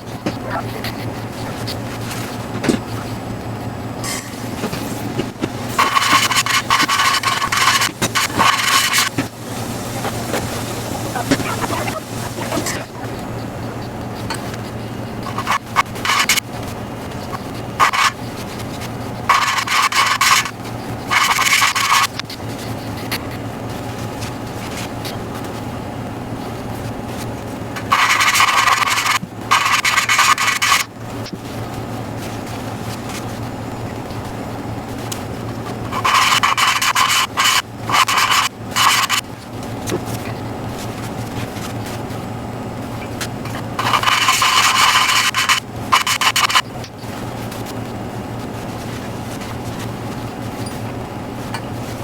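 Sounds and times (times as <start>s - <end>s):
valve lapping gritty rubbing: 0.0s - 25.5s, 27.2s - 42.1s, 43.0s - 50.7s
steady low hum: 0.0s - 52.0s.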